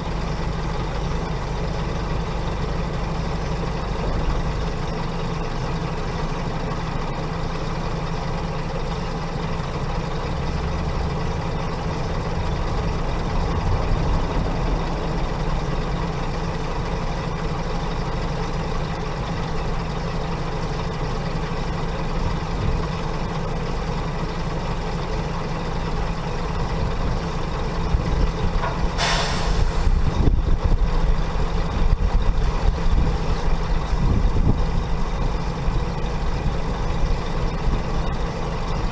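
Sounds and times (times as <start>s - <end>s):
heavy diesel engine running: 0.0s - 38.9s
air brake hiss: 28.9s - 30.1s.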